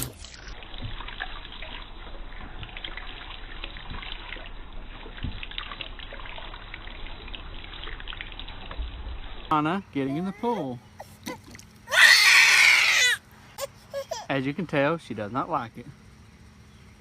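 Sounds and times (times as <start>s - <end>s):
small splashes and drips: 0.0s - 9.5s, 11.0s - 13.4s
water trickling: 0.0s - 10.2s.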